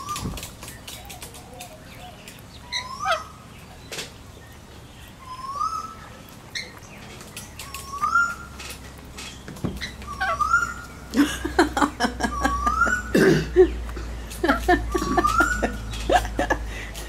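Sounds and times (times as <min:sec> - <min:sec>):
beaks pecking on glass: 0:00.0 - 0:13.1, 0:13.7 - 0:17.0
rising whistled bird call: 0:02.0 - 0:03.4, 0:05.2 - 0:06.0, 0:07.6 - 0:08.6, 0:09.8 - 0:11.0, 0:14.9 - 0:15.9.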